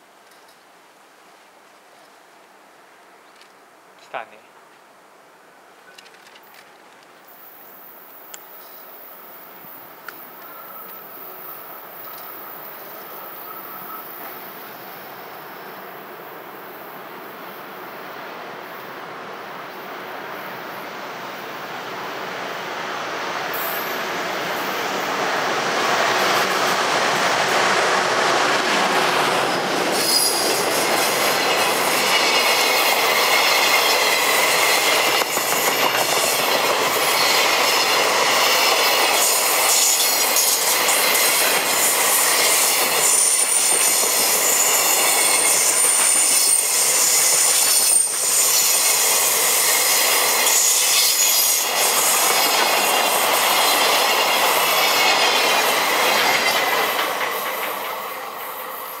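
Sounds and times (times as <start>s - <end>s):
train wheels on rails: 5.9s - 59.0s
high-pitched wheel squeal: 30.0s - 30.6s.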